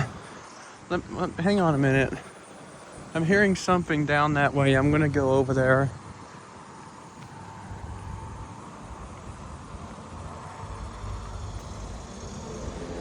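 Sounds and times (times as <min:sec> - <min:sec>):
insect chorus: 0:00.0 - 0:13.0
road traffic rumble: 0:00.0 - 0:13.0.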